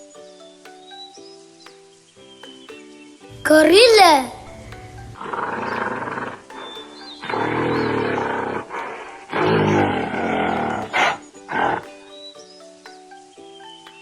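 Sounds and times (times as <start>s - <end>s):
background music: 0.0s - 14.0s
gorilla roaring: 4.3s - 11.8s.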